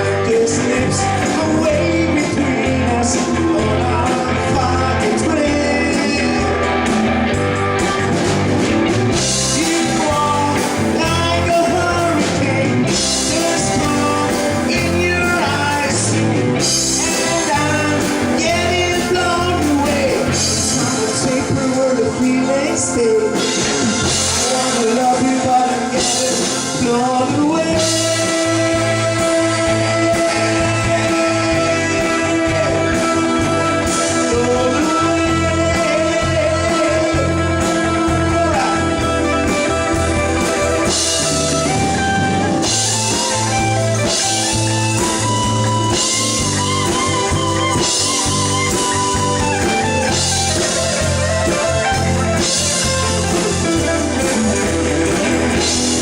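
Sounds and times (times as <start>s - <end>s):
rock music with electric guitar: 0.0s - 56.0s.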